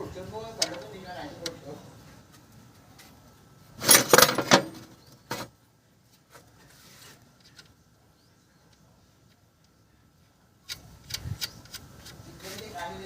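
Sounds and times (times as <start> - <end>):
metal tools clinking and rattling: 3.8 - 5.0
soft rub: 6.5 - 7.4.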